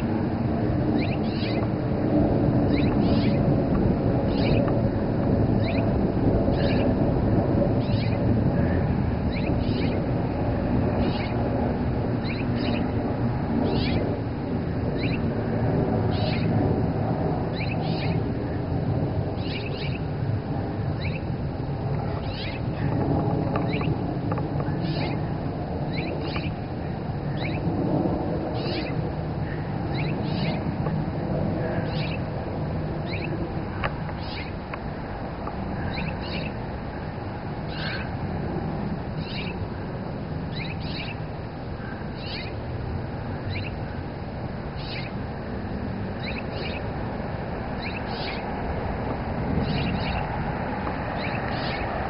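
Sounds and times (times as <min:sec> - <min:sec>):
low background rumble: 0:00.0 - 0:52.0
bird mewing calls: 0:01.0 - 0:01.7, 0:02.7 - 0:03.5, 0:04.3 - 0:04.7, 0:05.6 - 0:07.0, 0:07.8 - 0:10.1, 0:11.0 - 0:11.5, 0:12.2 - 0:13.0, 0:13.6 - 0:14.1, 0:15.0 - 0:15.3, 0:16.1 - 0:16.6, 0:17.5 - 0:18.6, 0:19.4 - 0:20.1, 0:20.9 - 0:21.3, 0:22.0 - 0:27.7, 0:28.4 - 0:30.8, 0:31.6 - 0:32.3, 0:33.0 - 0:34.6, 0:35.7 - 0:36.6, 0:37.7 - 0:38.2, 0:39.2 - 0:39.9, 0:40.5 - 0:42.6, 0:43.2 - 0:44.0, 0:44.7 - 0:45.2, 0:46.1 - 0:46.9, 0:47.8 - 0:48.6, 0:49.6 - 0:50.4, 0:51.1 - 0:52.0.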